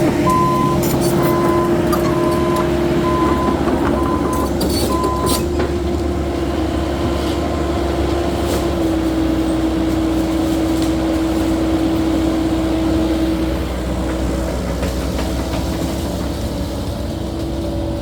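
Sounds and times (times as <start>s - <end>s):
metal clanks: 0.0s - 5.8s
hydraulic whine: 0.0s - 6.0s
diesel engine under load: 0.0s - 18.0s.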